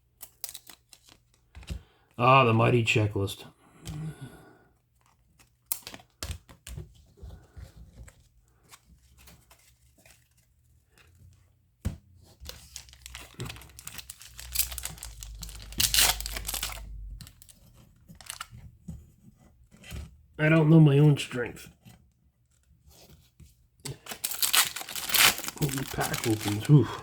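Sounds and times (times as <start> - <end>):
wrapper tearing and crinkling: 0.2 - 1.2, 12.5 - 18.5, 23.9 - 27.0.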